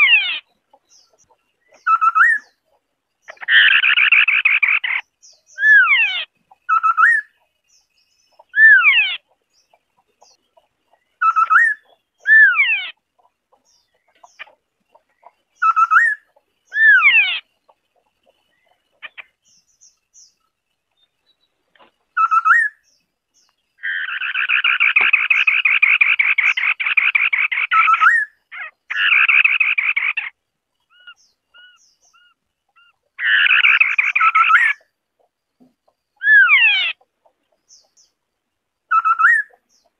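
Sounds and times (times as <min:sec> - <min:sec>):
bird whistled phrases: 0:01.8 - 0:02.6, 0:22.2 - 0:22.8, 0:38.9 - 0:39.6.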